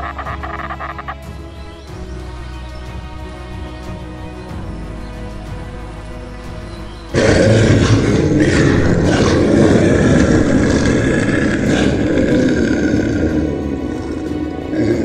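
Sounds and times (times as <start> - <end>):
soft music: 0.0 - 15.0
dinosaur roar: 7.1 - 15.0.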